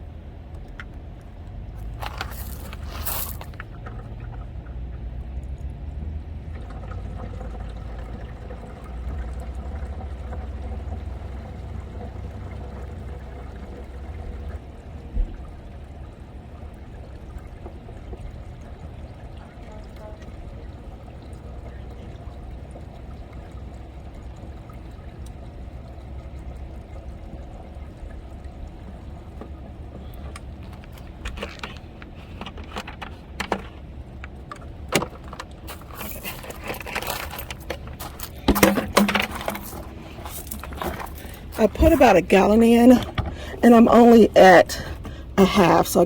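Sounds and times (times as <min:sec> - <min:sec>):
fluid pouring into reservoir: 0:00.6 - 0:46.0
plastic container clicks and knocks: 0:34.6 - 0:41.2.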